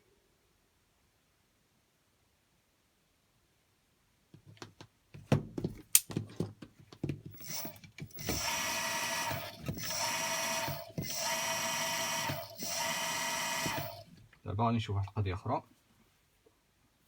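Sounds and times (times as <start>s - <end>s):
electric motor whining: 7.4s - 14.1s.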